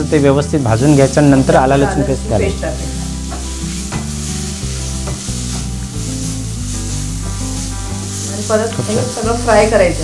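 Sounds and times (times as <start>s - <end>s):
low background music: 0.0s - 10.0s
prawns sizzling in a pan: 0.0s - 10.0s
spatula knocking on pan: 3.3s - 4.2s, 5.0s - 5.8s.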